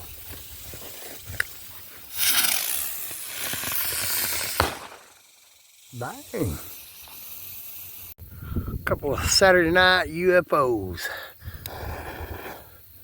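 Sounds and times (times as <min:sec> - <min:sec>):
spinning firework hissing: 0:00.0 - 0:08.2
firework bang: 0:03.3 - 0:05.3.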